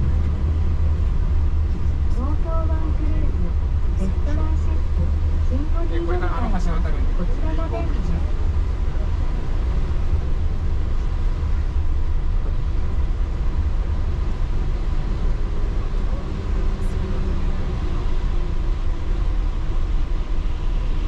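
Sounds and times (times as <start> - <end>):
train rumbling on track: 0.0 - 21.0.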